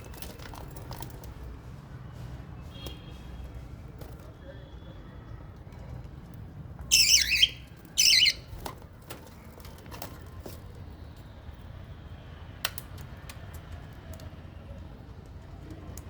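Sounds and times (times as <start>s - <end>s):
parrot chirps and clicks: 6.9s - 8.5s
parrot squawks: 6.9s - 8.5s.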